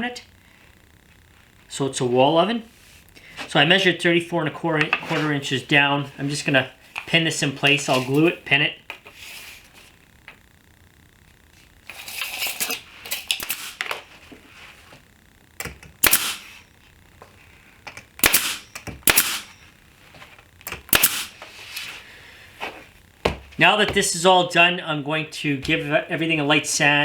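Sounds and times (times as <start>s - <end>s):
tool handling noise: 11.9s - 14.4s
pin nailer popping: 12.6s - 14.0s, 15.6s - 16.6s, 17.9s - 19.6s, 20.6s - 21.4s.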